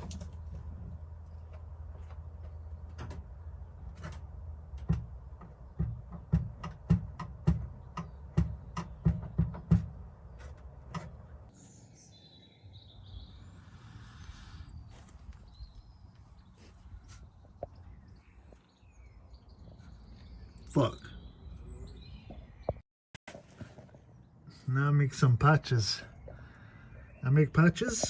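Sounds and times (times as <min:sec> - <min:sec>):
sharp knocks with low thud: 0:04.8 - 0:10.0
bird chirping: 0:07.5 - 0:22.8, 0:23.9 - 0:28.0.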